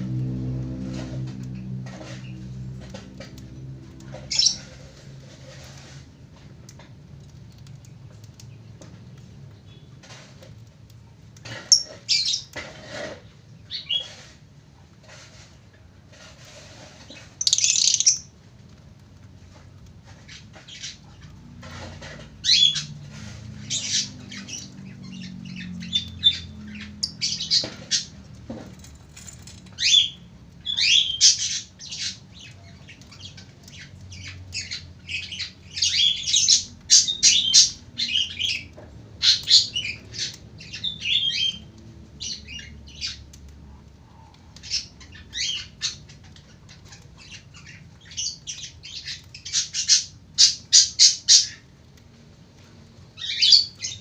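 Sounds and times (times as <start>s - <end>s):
lovebird chattering: 4.3s - 4.6s, 17.4s - 18.3s.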